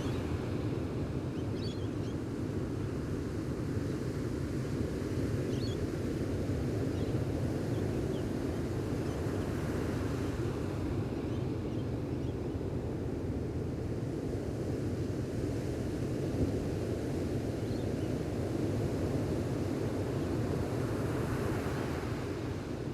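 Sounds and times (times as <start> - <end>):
faint bird chirps: 1.3 - 2.2.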